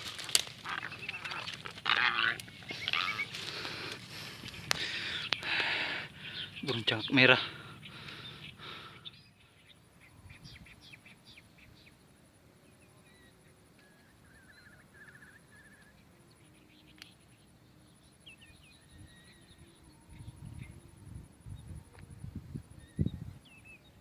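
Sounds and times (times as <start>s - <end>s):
bird trill: 0.0s - 3.5s
small birds chirping: 0.0s - 24.0s.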